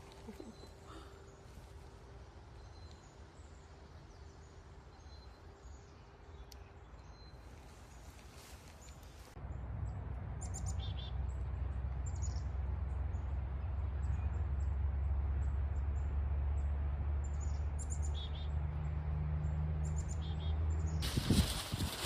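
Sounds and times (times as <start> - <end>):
small birds chirping: 0.0 - 9.4, 19.4 - 22.0.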